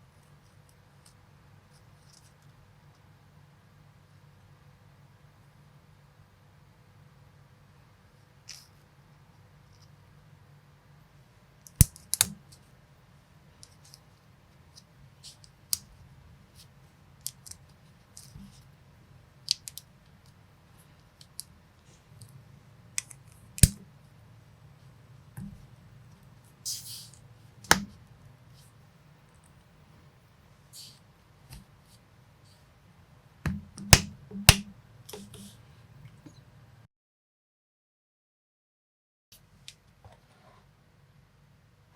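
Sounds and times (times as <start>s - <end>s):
plastic pieces snapping together: 11.7s - 12.4s, 23.0s - 23.8s.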